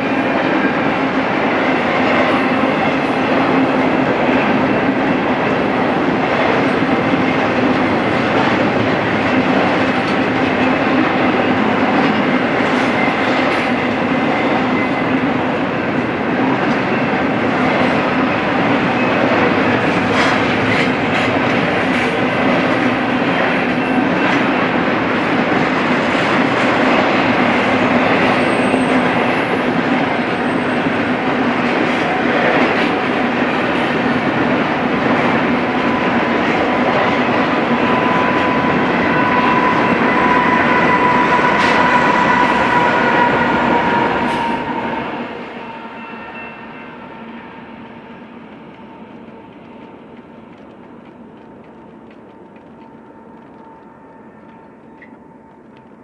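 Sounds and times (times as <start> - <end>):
freight train wheels rumbling: 0.0 - 56.0
clacks over rail joints: 18.9 - 24.6
high wheel squeal: 35.8 - 47.7.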